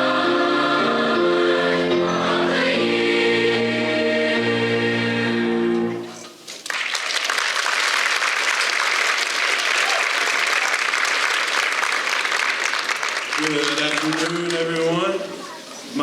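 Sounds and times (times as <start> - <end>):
choir singing a chord: 0.0 - 6.2
audience applauding: 6.5 - 15.2.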